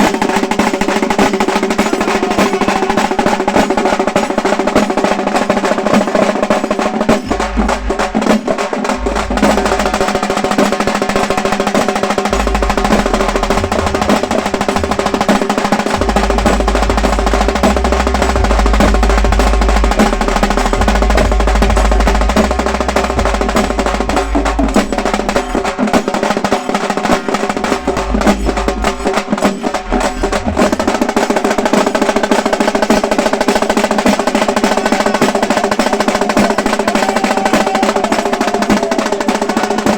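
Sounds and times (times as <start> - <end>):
frame drums rolling: 0.0 - 39.9
steady held tone: 7.2 - 31.4.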